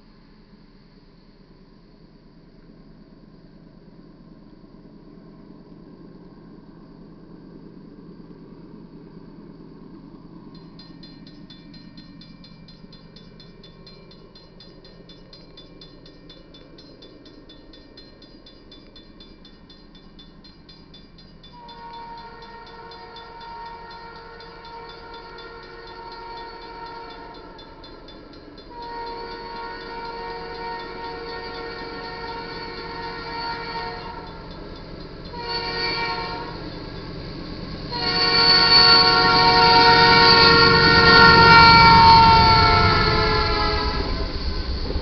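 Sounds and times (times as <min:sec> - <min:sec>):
diesel locomotive rumble: 0:01.5 - 0:45.0
bell ringing rapidly: 0:10.6 - 0:35.3
locomotive air horn: 0:21.6 - 0:27.8, 0:28.7 - 0:34.4, 0:35.3 - 0:36.6, 0:37.9 - 0:44.2.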